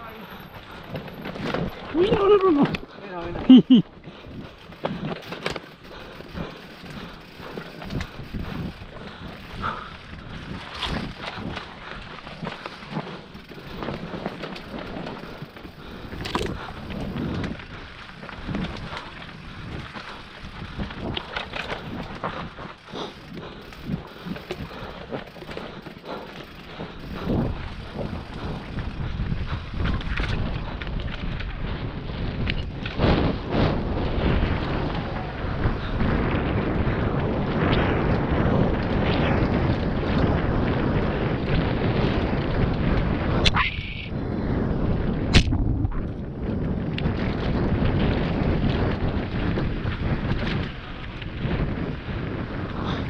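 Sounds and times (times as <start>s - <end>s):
bike tyres on dirt trail: 0.0s - 53.0s
wind buffeting microphone: 0.0s - 53.0s.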